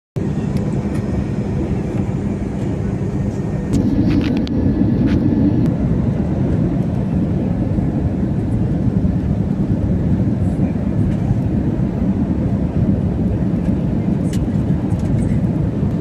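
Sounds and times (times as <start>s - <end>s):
jet engines roaring in cabin: 0.2s - 16.0s
rushing air: 3.2s - 6.6s.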